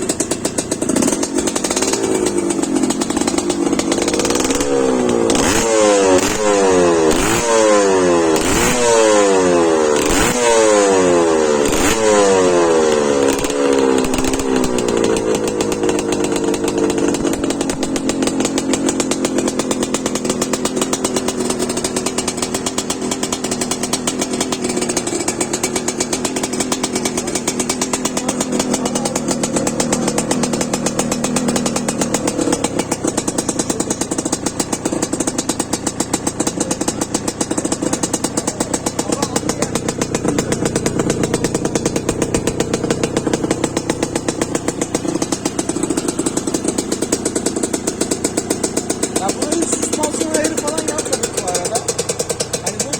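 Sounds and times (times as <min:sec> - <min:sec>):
motorcycle engine revving and idling: 0:00.0 - 0:52.9.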